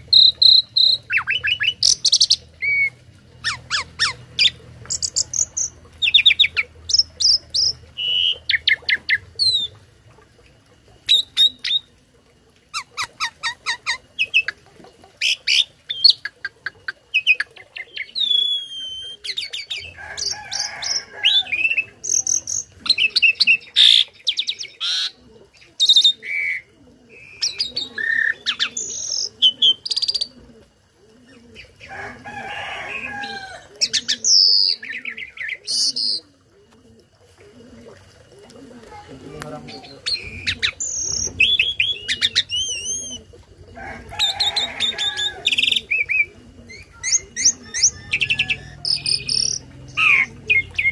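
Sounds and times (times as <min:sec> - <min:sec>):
starling singing: 0:38.9 - 0:50.9.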